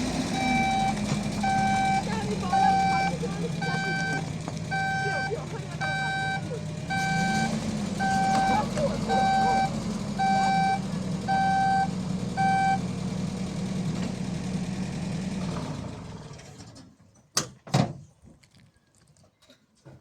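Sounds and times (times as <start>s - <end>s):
vehicle engine running: 0.0s - 16.4s
reversing alarm beeping: 0.3s - 12.8s.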